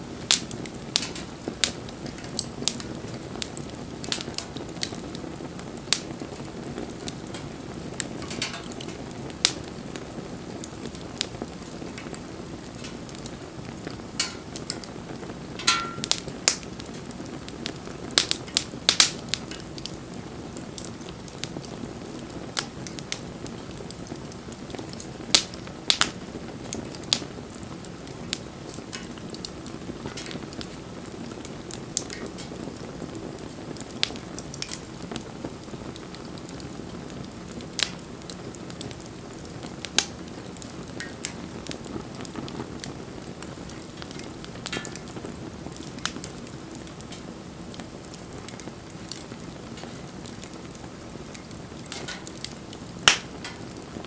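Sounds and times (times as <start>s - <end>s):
bonfire hissing and crackling: 0.0s - 54.0s
wood popping: 6.9s - 9.7s, 11.2s - 15.0s, 15.6s - 17.0s, 51.4s - 53.8s.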